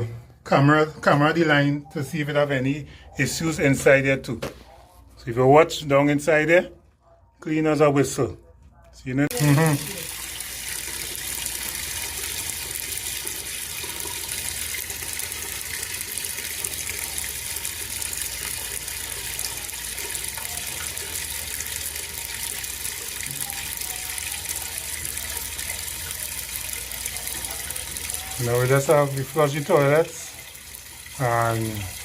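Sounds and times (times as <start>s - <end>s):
water rushing into sewer line: 9.3s - 32.0s.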